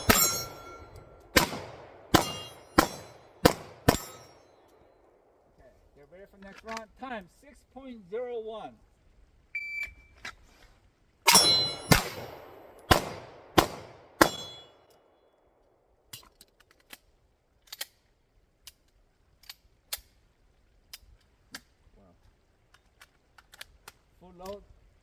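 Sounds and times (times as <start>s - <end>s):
steel target plates ringing: 0.0s - 1.2s, 2.1s - 4.5s, 11.3s - 12.6s, 14.2s - 14.8s
pistol shots: 0.0s - 4.4s, 11.3s - 14.7s.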